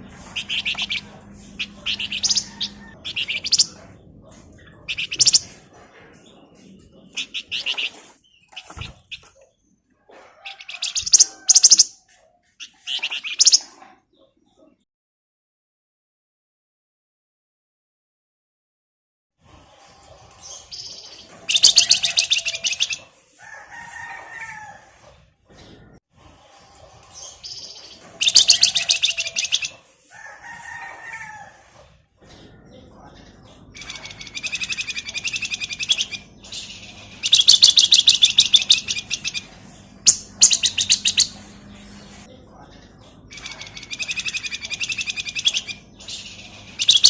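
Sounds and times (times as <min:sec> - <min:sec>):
songbird singing: 0:00.0 - 0:05.6, 0:12.6 - 0:13.8, 0:20.5 - 0:23.0, 0:27.2 - 0:29.8, 0:32.8 - 0:42.3, 0:43.2 - 0:47.0
bird chattering trills: 0:00.2 - 0:04.0, 0:04.6 - 0:05.7, 0:07.1 - 0:09.4, 0:10.6 - 0:12.0, 0:12.6 - 0:13.8, 0:20.5 - 0:23.1, 0:27.3 - 0:29.8, 0:33.7 - 0:42.3, 0:43.3 - 0:47.0.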